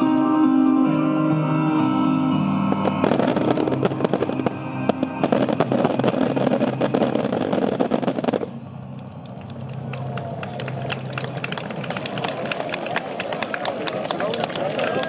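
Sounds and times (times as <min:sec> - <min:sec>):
fireworks crackling: 0:02.7 - 0:13.4.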